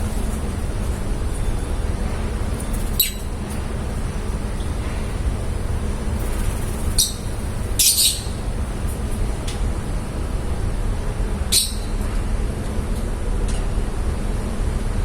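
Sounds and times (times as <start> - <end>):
steady low rumble: 0.0 - 15.0
lovebirds chirping and squawking: 2.5 - 4.4, 5.0 - 9.1, 11.5 - 11.9.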